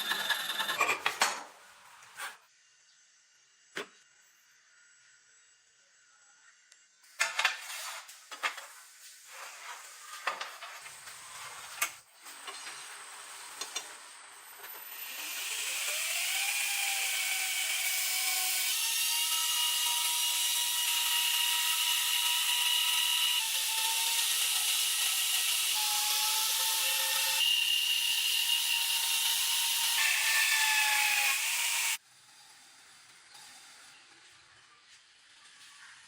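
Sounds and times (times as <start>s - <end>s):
power tool grinding: 0.0s - 0.9s, 14.8s - 32.0s.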